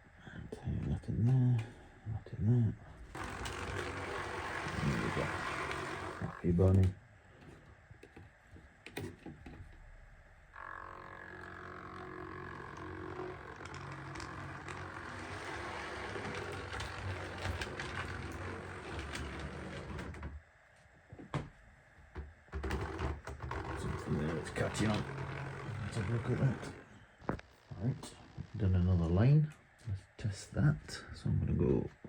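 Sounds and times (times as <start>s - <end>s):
model train motor whining: 3.0s - 6.9s, 10.6s - 20.3s, 23.5s - 27.1s.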